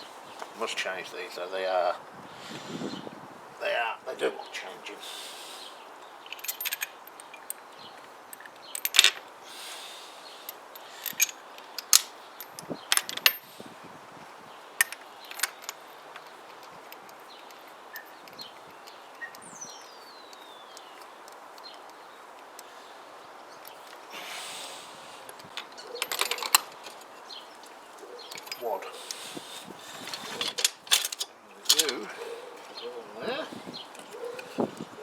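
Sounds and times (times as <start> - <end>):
metallic clicks of hand tools: 10.5 - 13.4, 30.1 - 32.0.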